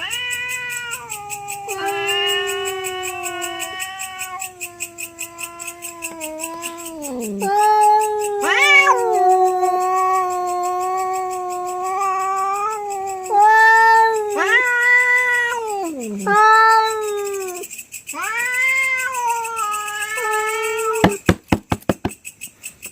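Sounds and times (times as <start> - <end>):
cats yowling in a fight: 0.0 - 21.2.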